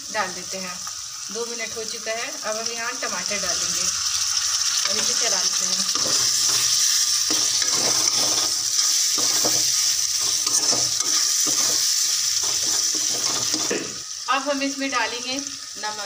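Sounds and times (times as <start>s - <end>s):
food sizzling in hot oil: 0.0s - 16.0s
spatula stirring: 5.9s - 13.9s.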